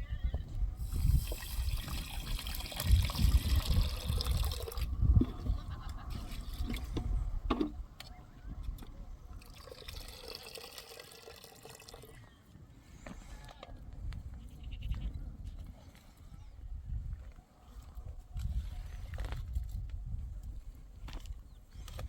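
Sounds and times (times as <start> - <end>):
low rumble on microphone: 0.0 - 9.4.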